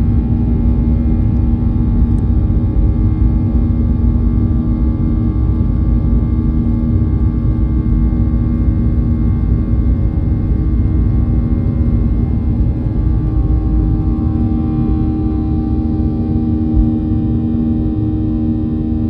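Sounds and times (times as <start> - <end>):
jet engines rumbling: 10.2 - 18.7.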